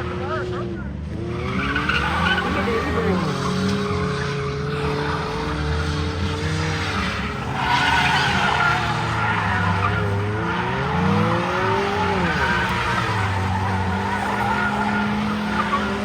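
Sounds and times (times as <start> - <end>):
car engine revving: 0.0 - 16.0
tyres screeching: 6.6 - 16.0.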